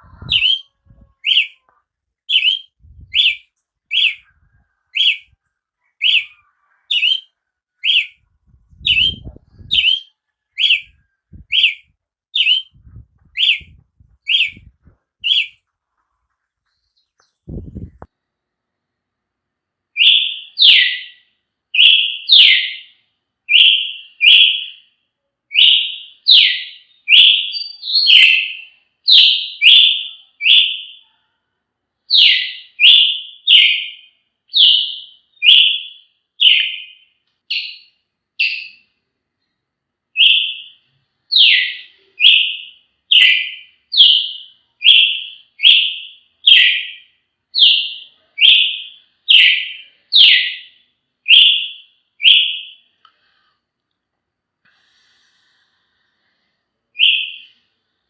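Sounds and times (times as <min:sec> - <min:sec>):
bird singing whistled notes: 0:00.0 - 0:01.6, 0:02.3 - 0:05.3, 0:05.9 - 0:15.6, 0:25.5 - 0:31.0, 0:32.1 - 0:38.9, 0:40.2 - 0:52.9, 0:57.0 - 0:57.6.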